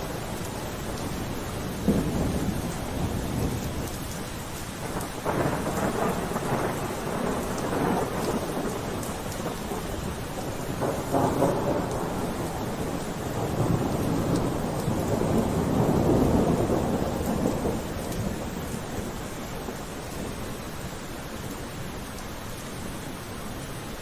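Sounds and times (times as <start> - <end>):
thunder rumbling: 0.0 - 4.2, 4.8 - 20.9
steady rainfall: 0.0 - 24.0.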